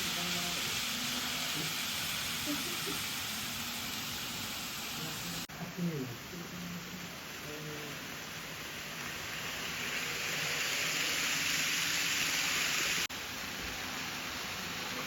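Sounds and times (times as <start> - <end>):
model train running on track: 0.0 - 5.4, 6.5 - 15.0.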